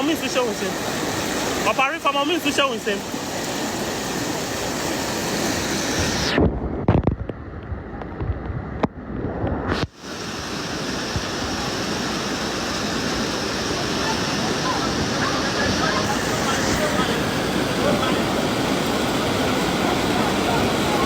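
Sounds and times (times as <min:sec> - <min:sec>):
floodwater rushing: 0:00.0 - 0:06.5, 0:09.8 - 0:21.0
muffled low thumps and rumbling: 0:06.4 - 0:09.9.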